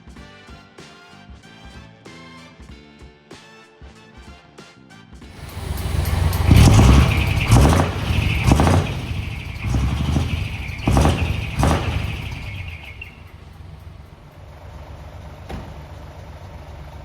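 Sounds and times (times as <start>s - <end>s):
diesel truck engine revving: 5.4s - 17.0s.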